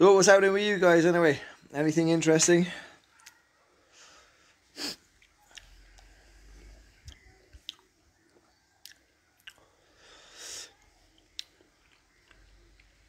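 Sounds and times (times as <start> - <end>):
wet chewing and sucking: 4.8 - 9.8, 10.4 - 13.0.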